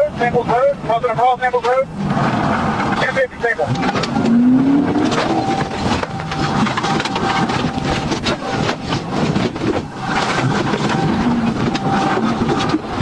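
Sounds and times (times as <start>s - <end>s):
car engine: 0.0s - 13.0s
wind noise: 3.7s - 13.0s.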